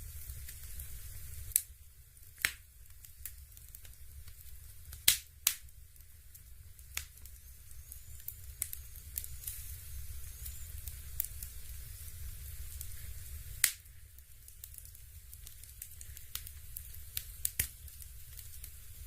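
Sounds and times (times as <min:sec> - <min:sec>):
steady low hum: 0:00.0 - 0:19.0
crackling log pops and snaps: 0:01.5 - 0:01.7, 0:02.4 - 0:05.7, 0:13.6 - 0:13.9, 0:14.5 - 0:18.8.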